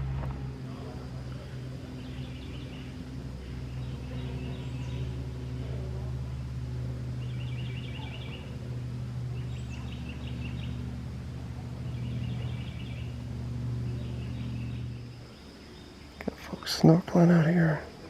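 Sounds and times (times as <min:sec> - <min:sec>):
low hum: 0:00.0 - 0:18.0
bird trilling: 0:07.1 - 0:16.2.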